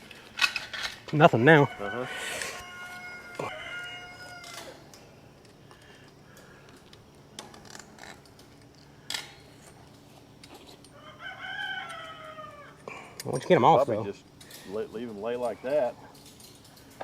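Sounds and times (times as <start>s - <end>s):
metallic clinks and knocks: 16.1s - 17.0s.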